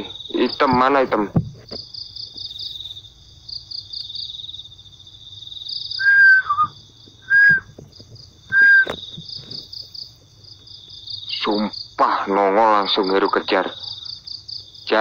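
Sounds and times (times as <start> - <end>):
crickets chirping: 0.0 - 15.0
high whistle-like notes: 6.0 - 7.7, 8.5 - 9.0.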